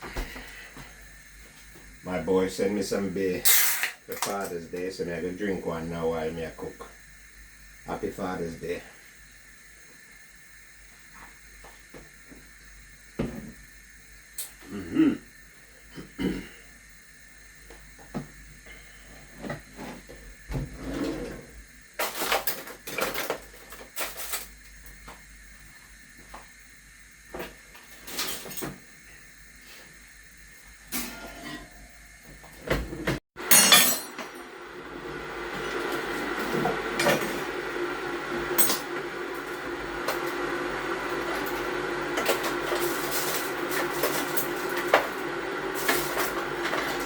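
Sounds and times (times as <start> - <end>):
steady hiss: 0.2 - 20.6
pots and utensils clattering: 33.4 - 34.4.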